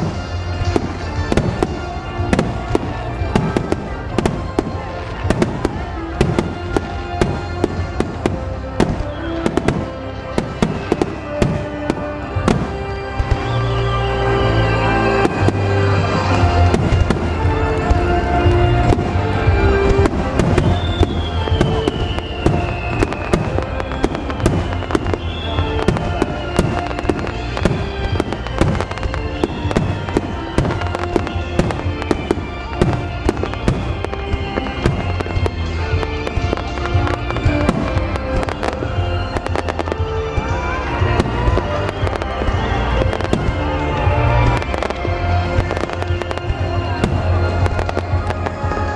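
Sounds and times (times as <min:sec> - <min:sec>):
fireworks bursts and crackles: 0:00.0 - 0:48.9
music over loudspeakers: 0:00.0 - 0:48.9
falling whistling tones: 0:13.2 - 0:15.9, 0:18.8 - 0:48.9.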